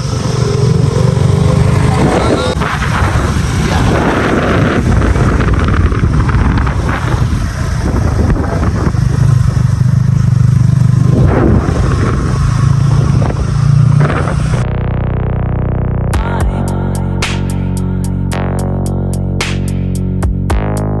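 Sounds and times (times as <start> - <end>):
wind rushing over microphone: 0.0 - 14.7
motorcycle engine running: 0.0 - 19.0.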